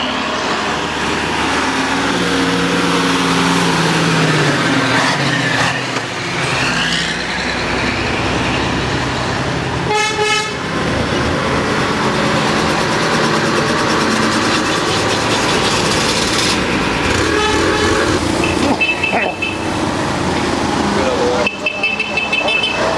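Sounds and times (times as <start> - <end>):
trucks passing: 0.0 - 22.9
truck horn blast: 9.9 - 10.6, 17.1 - 19.7, 21.4 - 22.9.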